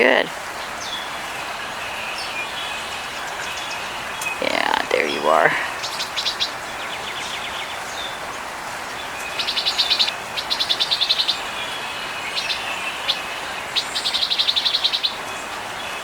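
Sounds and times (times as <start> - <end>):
songbird trilling: 9.1 - 15.2.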